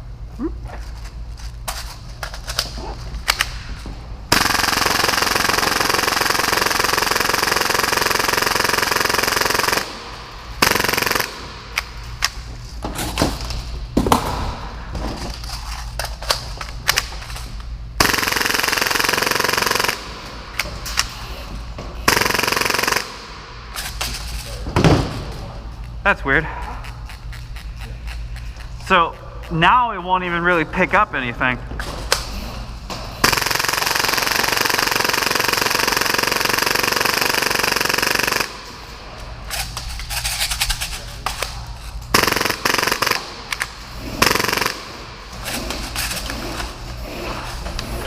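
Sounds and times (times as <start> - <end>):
airsoft pistol firing bursts: 4.3 - 11.8, 18.0 - 20.3, 22.0 - 23.4, 33.2 - 38.8, 42.1 - 45.1.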